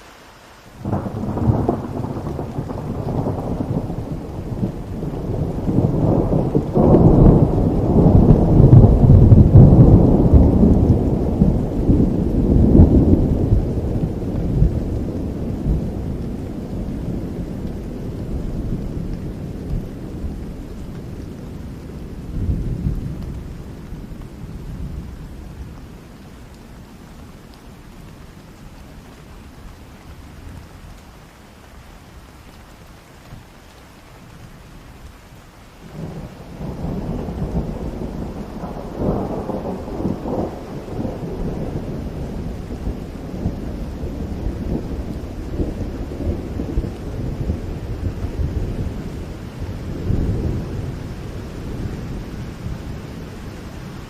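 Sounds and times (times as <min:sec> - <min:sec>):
steady rain: 0:00.0 - 0:54.0
thunder rolling: 0:00.8 - 0:20.6, 0:35.9 - 0:54.0.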